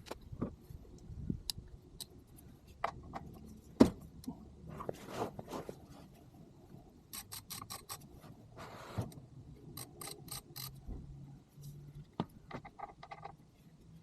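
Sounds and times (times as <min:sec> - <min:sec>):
ratchet wrench clicking: 0:07.1 - 0:08.1, 0:09.7 - 0:10.9.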